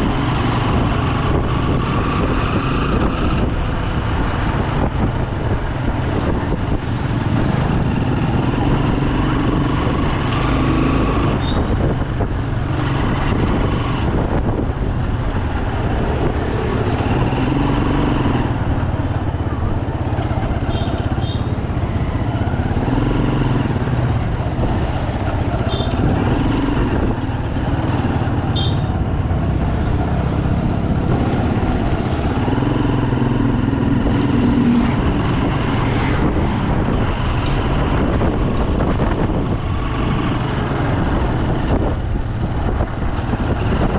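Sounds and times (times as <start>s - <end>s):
motorcycle engine running: 0.0s - 43.9s
road and wind noise: 0.0s - 43.9s.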